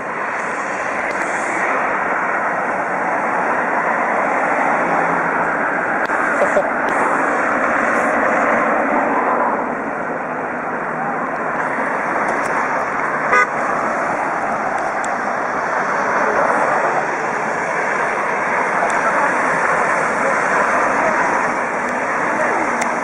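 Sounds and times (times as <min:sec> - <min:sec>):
highway traffic noise: 0:00.0 - 0:23.0
car horn toot: 0:13.3 - 0:13.6.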